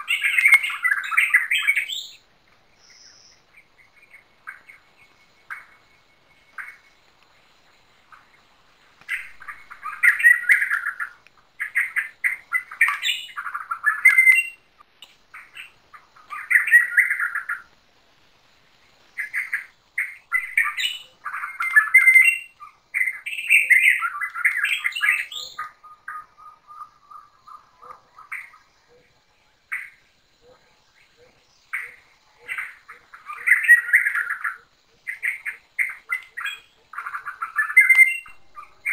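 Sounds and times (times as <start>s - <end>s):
birds chattering and squawking: 0.0s - 17.8s, 19.0s - 38.9s
thin fast bird trill: 9.1s - 14.7s.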